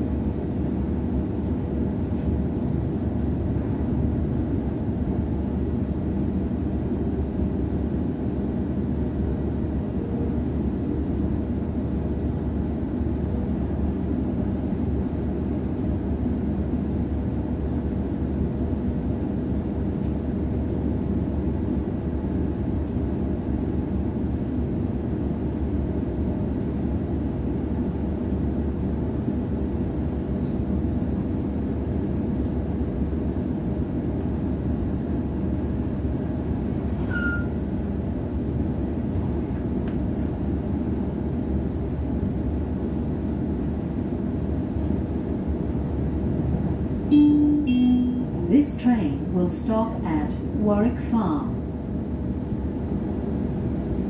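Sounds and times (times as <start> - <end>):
high squeak: 37.1 - 37.6
steady tone: 47.1 - 51.3.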